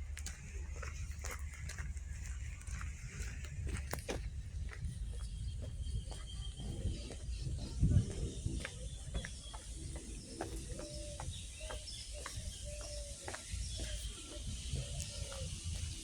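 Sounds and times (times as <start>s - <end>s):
small birds chirping: 0.0s - 16.0s
steady low rumble: 0.0s - 16.0s
dove cooing: 6.6s - 16.0s.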